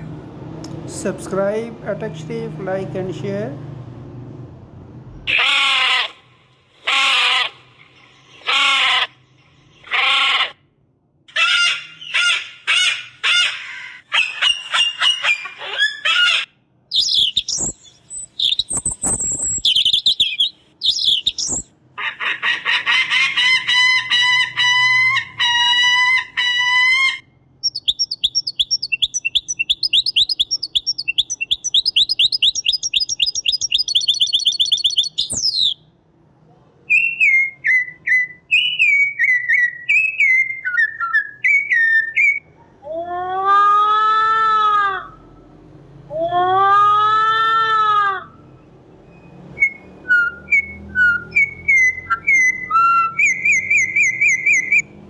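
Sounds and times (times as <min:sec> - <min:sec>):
cockatoo screeches: 0:05.3 - 0:06.2
bird calls: 0:11.3 - 0:35.8, 0:50.1 - 0:54.8
finch twittering: 0:16.9 - 0:21.7, 0:27.6 - 0:35.8.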